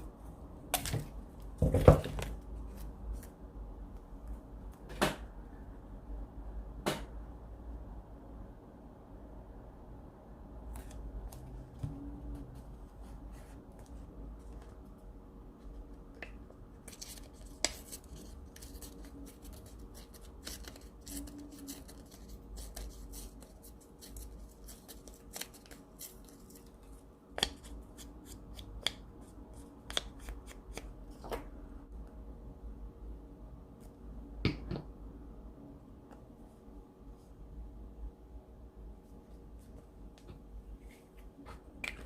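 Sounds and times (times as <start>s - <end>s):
faint steady hum: 0.0s - 42.0s
paper rustling: 16.8s - 26.8s.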